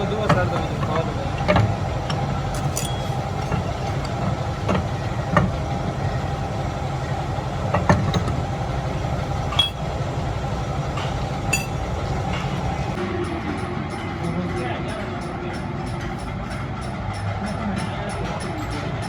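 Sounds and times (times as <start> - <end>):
workshop machinery humming: 0.0 - 17.6
sharp metallic clinks: 2.5 - 3.8, 11.5 - 11.9.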